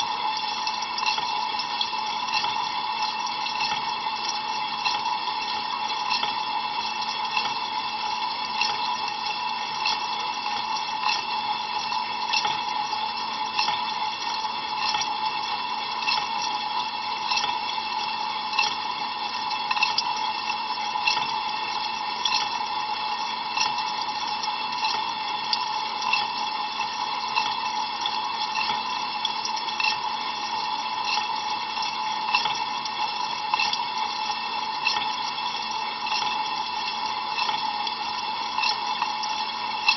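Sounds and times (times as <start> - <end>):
water jets splashing in dishwasher: 0.0 - 39.9.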